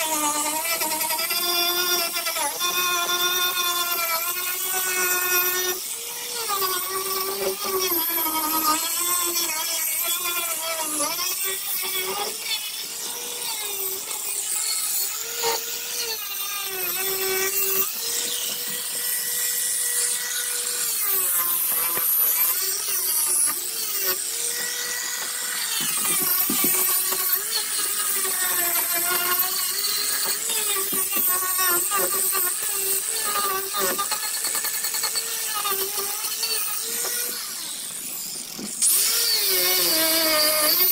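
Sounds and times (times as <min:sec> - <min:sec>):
electric grinder motor whine: 0:00.0 - 0:40.9.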